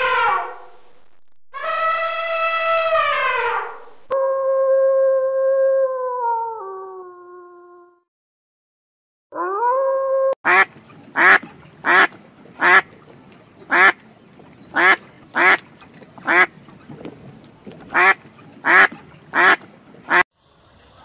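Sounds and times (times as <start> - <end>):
waterfowl harsh calls: 10.5 - 13.0, 13.7 - 14.0, 14.7 - 16.6, 17.9 - 20.2.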